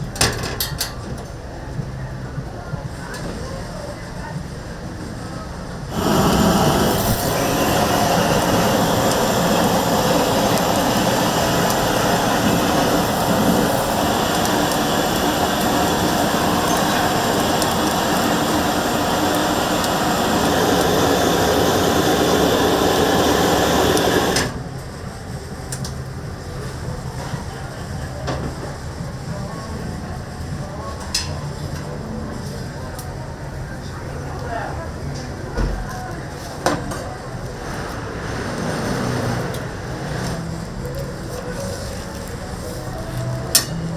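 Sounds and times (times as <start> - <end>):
machine rushing noise: 5.9 - 24.8.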